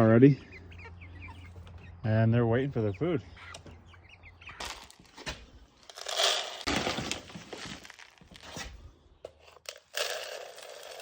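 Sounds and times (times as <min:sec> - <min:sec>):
crinkling handling noises: 0:04.6 - 0:08.8.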